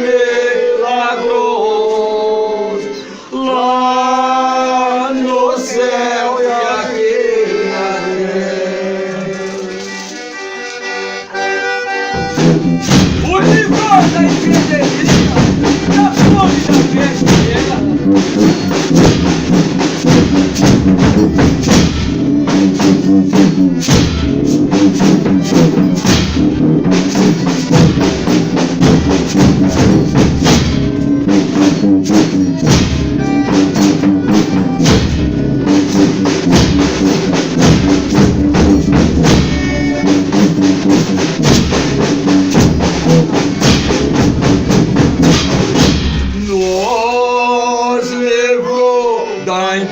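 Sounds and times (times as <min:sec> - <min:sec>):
held chords: 0:06.9 - 0:49.9
drums and tambourines beating: 0:12.1 - 0:47.4.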